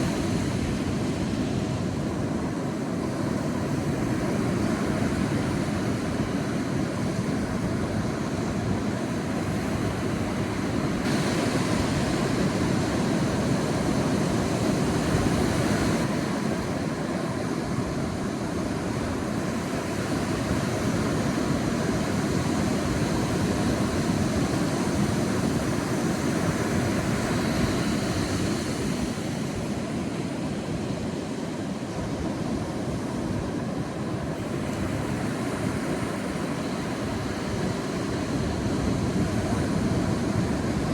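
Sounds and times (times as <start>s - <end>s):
sea waves washing onto beach: 0.0s - 40.9s.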